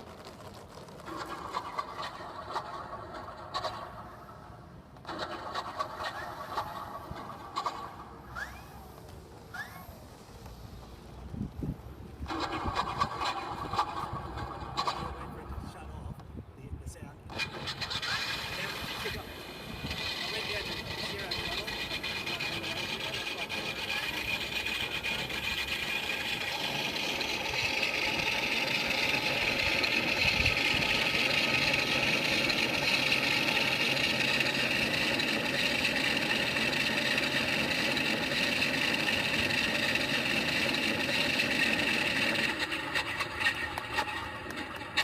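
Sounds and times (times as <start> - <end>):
knocks and clatter: 0.0 - 4.1
model airplane engine drone: 0.0 - 15.8, 17.3 - 45.0.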